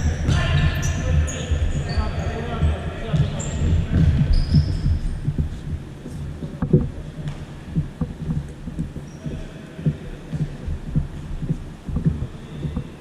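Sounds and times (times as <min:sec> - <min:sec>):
ball kicked and bouncing: 0:00.0 - 0:09.1
footsteps on sports hall floor: 0:00.0 - 0:13.0
low hum: 0:00.0 - 0:13.0.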